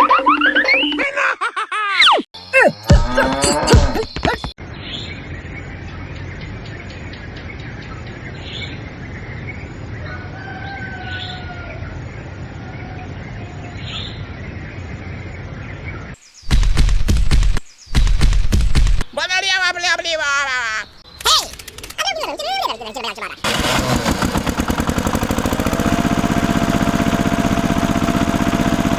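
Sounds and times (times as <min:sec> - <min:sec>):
outdoor background hiss: 0:13.2 - 0:16.5.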